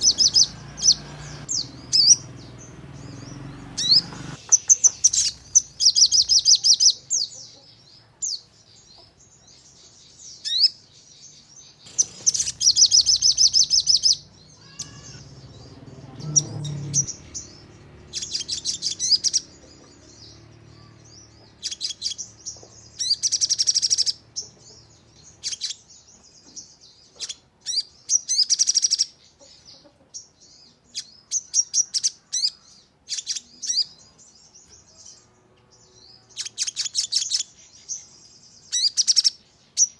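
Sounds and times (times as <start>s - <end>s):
bird trilling rapidly: 0.0s - 7.0s, 11.9s - 19.6s, 21.6s - 22.3s, 23.0s - 24.5s
sharp bird chirps: 0.0s - 7.4s, 11.7s - 29.2s, 36.0s - 39.9s.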